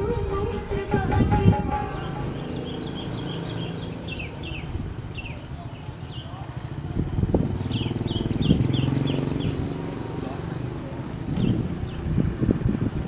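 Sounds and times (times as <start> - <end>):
bird chirping: 1.4 - 6.3, 7.6 - 9.7, 11.3 - 12.1.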